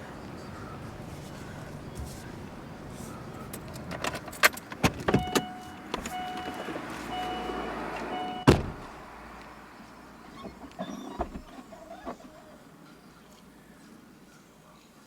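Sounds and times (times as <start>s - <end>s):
clicks and rattles in car: 3.4s - 6.9s, 10.3s - 12.6s
car door slamming: 3.8s - 9.0s
car warning chime beeping: 5.1s - 8.6s.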